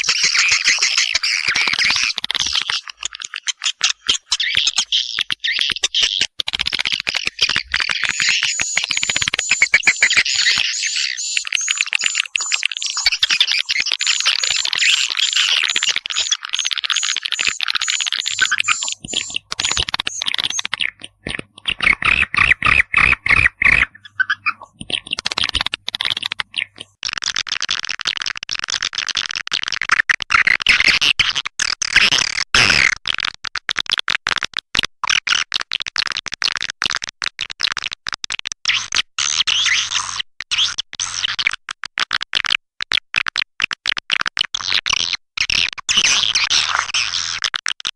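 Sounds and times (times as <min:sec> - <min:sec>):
swiftlets chirping and clicking: 0:00.0 - 0:27.0.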